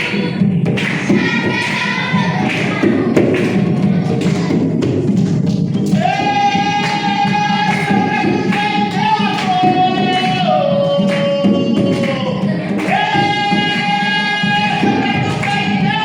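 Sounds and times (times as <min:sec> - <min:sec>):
hand drum beat: 0:00.0 - 0:16.0
person singing long notes: 0:06.0 - 0:16.0.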